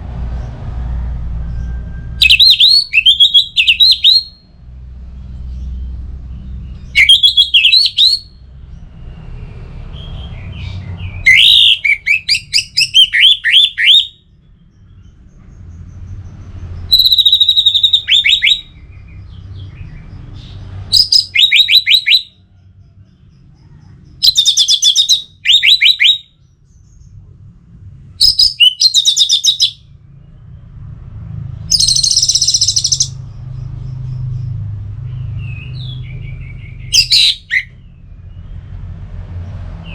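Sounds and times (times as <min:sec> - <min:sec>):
low rumble: 0:00.0 - 0:07.0, 0:08.2 - 0:11.3, 0:26.4 - 0:28.6, 0:29.8 - 0:37.0, 0:37.7 - 0:39.9
thrush singing: 0:02.1 - 0:04.5, 0:06.7 - 0:08.4, 0:09.9 - 0:14.2, 0:16.9 - 0:19.0.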